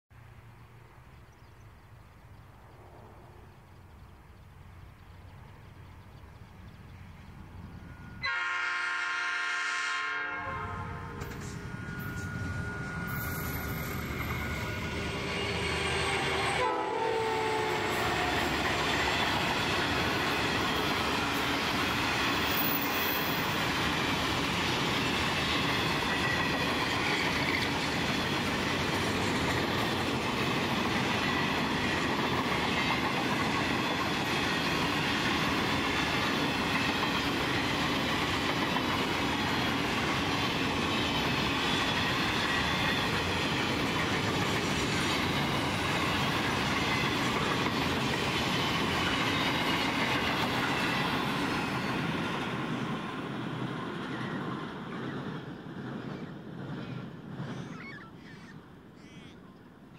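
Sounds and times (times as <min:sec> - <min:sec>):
train wheels rumbling and clattering: 0:11.0 - 0:16.7, 0:17.3 - 0:57.9
wheels squealing: 0:11.1 - 0:16.6.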